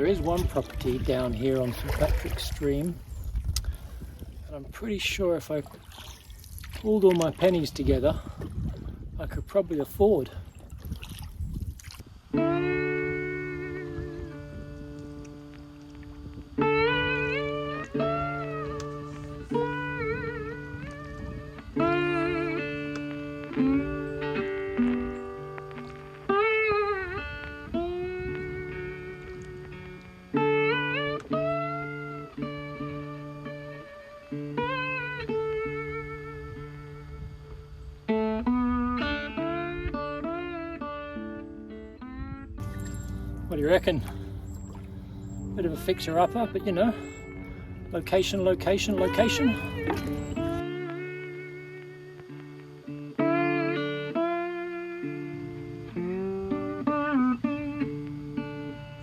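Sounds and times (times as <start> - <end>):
plucked guitar with sliding notes: 0.0 - 5.6, 12.2 - 59.0
low bass line: 42.2 - 51.2.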